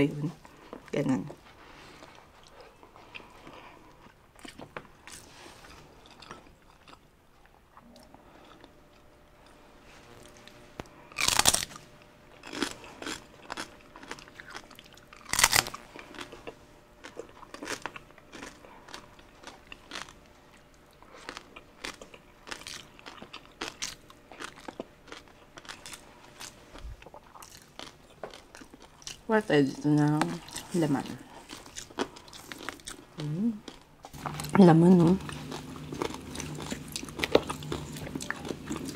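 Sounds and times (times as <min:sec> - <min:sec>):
crispy skin crunching: 0:07.7 - 0:29.3, 0:30.0 - 0:38.9.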